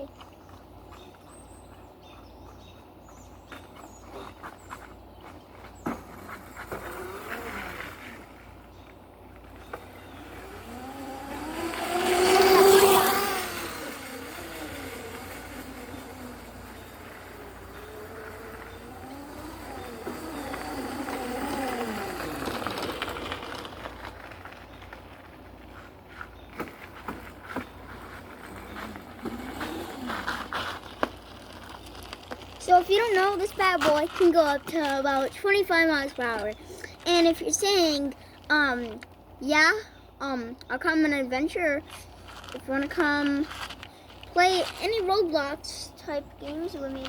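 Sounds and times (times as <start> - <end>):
vehicle passing by: 6.1 - 8.7, 9.6 - 24.7, 27.2 - 32.1.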